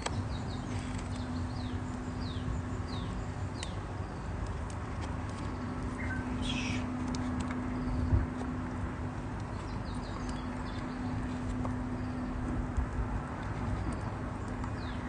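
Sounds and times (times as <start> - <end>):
small bird chirping: 6.0 - 6.9.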